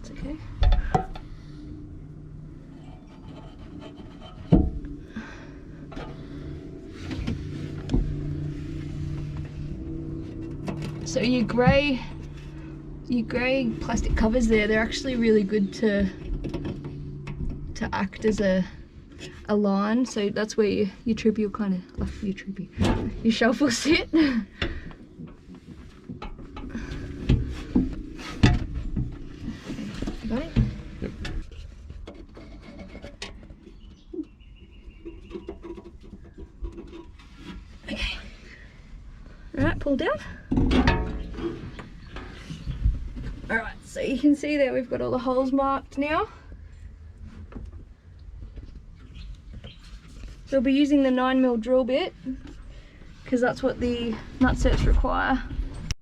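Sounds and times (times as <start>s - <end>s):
shelf rubbing and scraping: 2.5s - 16.2s, 25.4s - 33.2s.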